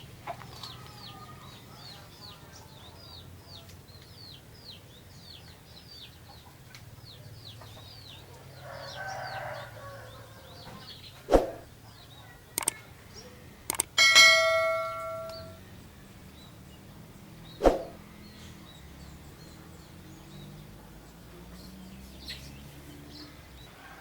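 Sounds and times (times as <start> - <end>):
small birds chirping: 0.0 - 23.8
clicks: 12.6 - 12.8, 13.7 - 14.0, 14.8 - 15.5
ringing metallic clang: 13.8 - 15.6.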